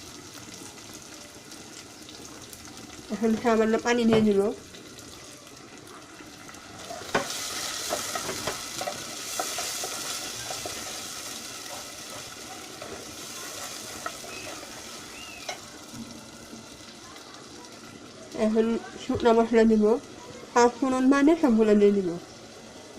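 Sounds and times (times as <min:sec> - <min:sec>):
paste sizzling in hot oil: 0:00.0 - 0:22.9
spoon scraping and tapping pan: 0:07.0 - 0:11.0.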